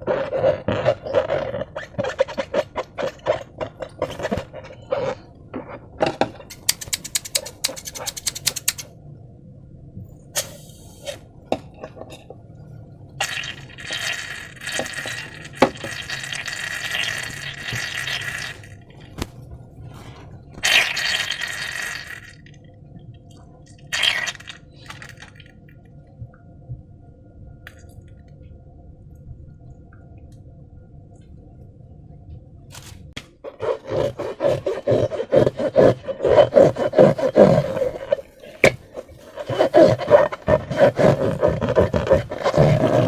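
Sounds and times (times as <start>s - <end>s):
slime squishing: 0.0s - 5.3s, 33.5s - 43.0s
containers clicking and clinking: 6.4s - 8.9s
liquid pouring: 13.2s - 19.2s, 20.6s - 22.5s, 23.9s - 25.5s.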